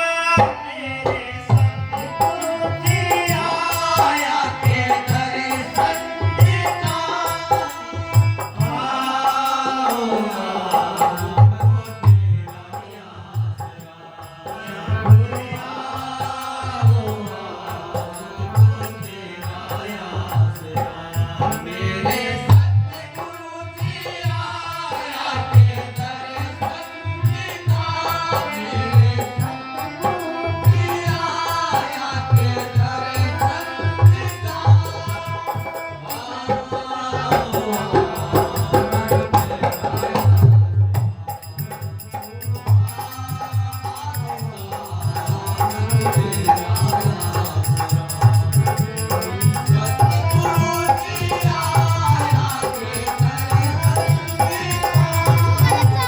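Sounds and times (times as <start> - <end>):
person singing a hymn: 42.3 - 56.0
hand drum beat: 44.1 - 56.0.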